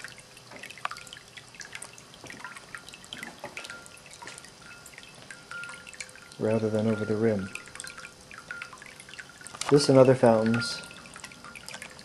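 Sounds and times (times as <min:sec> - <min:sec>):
water trickling and dripping: 0:00.0 - 0:12.0.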